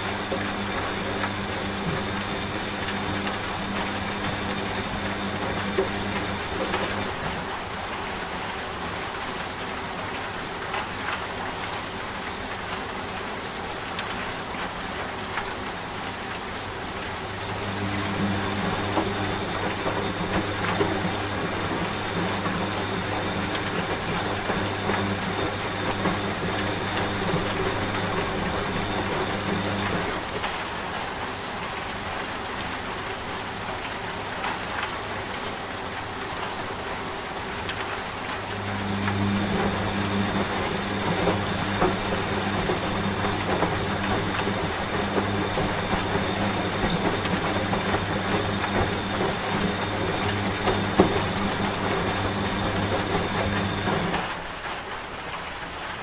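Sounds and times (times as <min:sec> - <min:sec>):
steady rain falling: 0:00.0 - 0:56.0
washing machine hum: 0:00.0 - 0:56.0.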